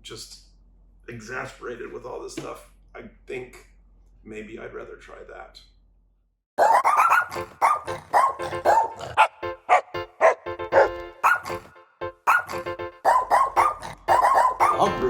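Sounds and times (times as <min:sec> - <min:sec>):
jingle made of dog barks: 0:06.6 - 0:15.0.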